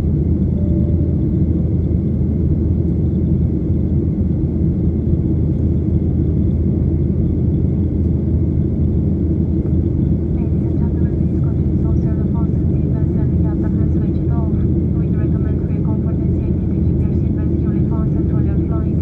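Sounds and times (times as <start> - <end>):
jet engine rumble in cabin: 0.0 - 19.0
faint high whine: 0.5 - 2.0.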